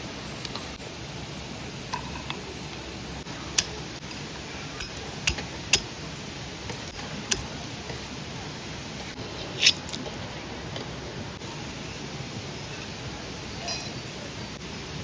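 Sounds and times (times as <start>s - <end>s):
steady low hiss: 0.0s - 15.0s
sharp clicks and clinks: 4.8s - 5.9s.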